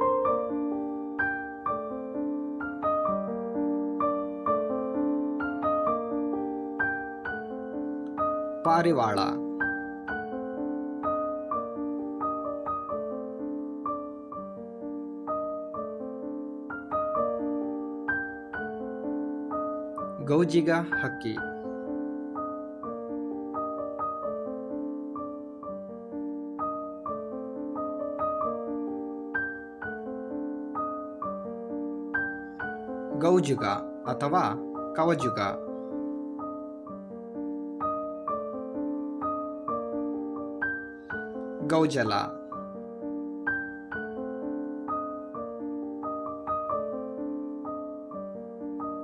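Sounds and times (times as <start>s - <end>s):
gentle piano melody: 0.0s - 49.0s.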